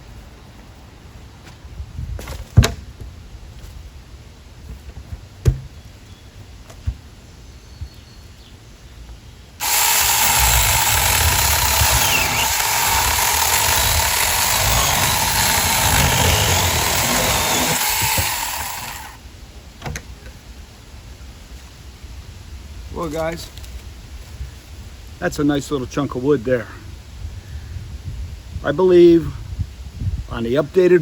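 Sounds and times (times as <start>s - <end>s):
electric chainsaw cutting wood: 9.6s - 19.2s.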